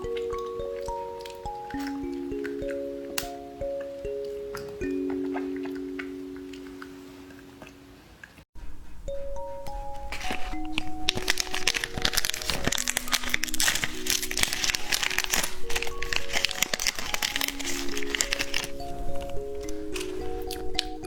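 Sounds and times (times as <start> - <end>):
plinking background music: 0.0 - 7.9, 9.0 - 21.0
plastic packaging crinkling: 9.7 - 21.0.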